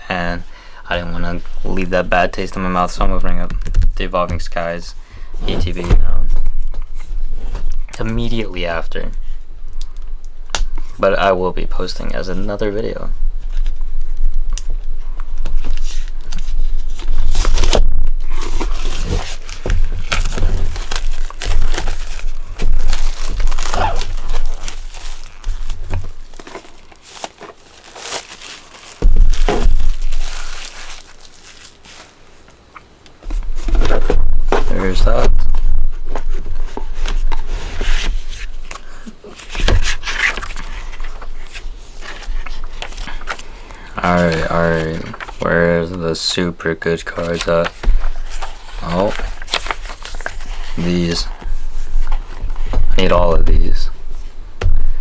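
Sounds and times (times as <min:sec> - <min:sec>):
plastic wrap tearing and crinkling: 0:15.4 - 0:32.6, 0:47.2 - 0:53.8
cardboard scrape and thump: 0:17.0 - 0:27.5, 0:33.3 - 0:35.6.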